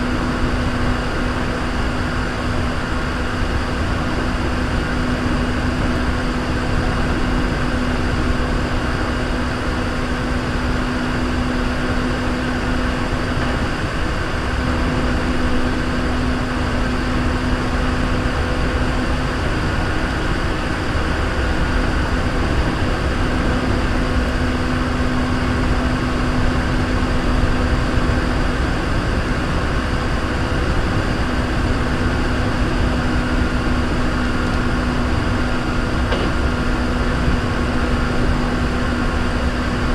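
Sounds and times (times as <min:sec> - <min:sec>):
running gear hum: 0:00.0 - 0:39.9
train wheels rumbling on rail: 0:00.0 - 0:39.9.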